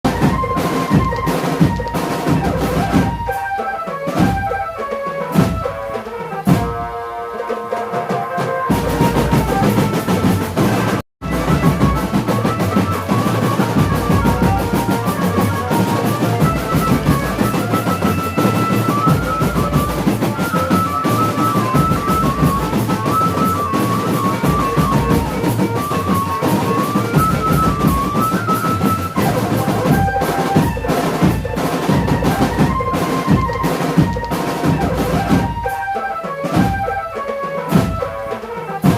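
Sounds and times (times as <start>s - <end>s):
bass and snare drums: 0.0s - 7.0s, 7.7s - 38.9s.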